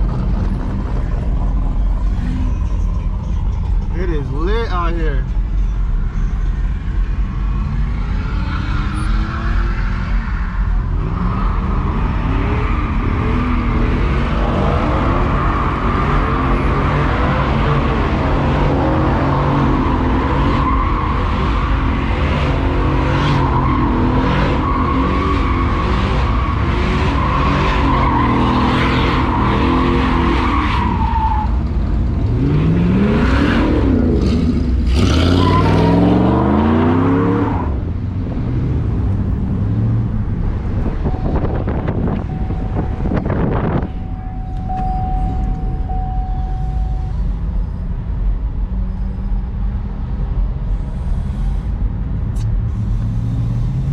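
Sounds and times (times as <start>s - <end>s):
tire squeal: 0.0s - 4.1s, 5.5s - 31.8s, 32.4s - 38.0s, 40.8s - 49.8s
truck engine revving: 32.2s - 43.8s.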